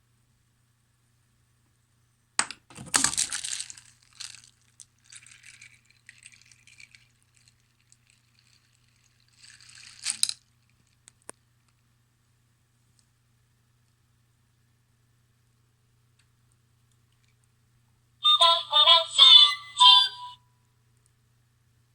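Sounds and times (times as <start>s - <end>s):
small objects clattering: 2.7s - 10.5s
water pouring and splashing: 5.0s - 10.3s.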